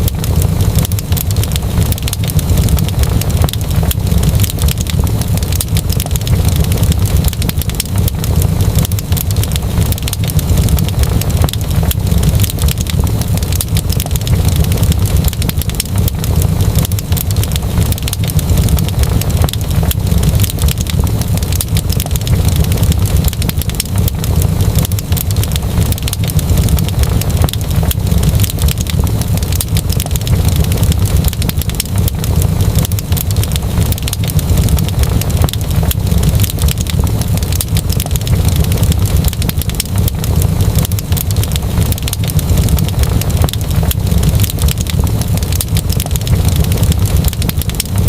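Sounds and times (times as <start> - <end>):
wood fire crackling: 0.0 - 48.0.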